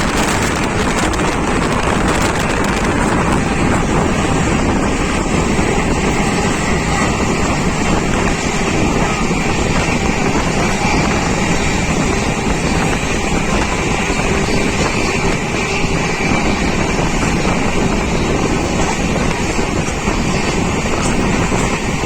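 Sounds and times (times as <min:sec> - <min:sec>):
passenger train rumbling: 0:00.0 - 0:22.0
wind buffeting microphone: 0:00.0 - 0:22.0.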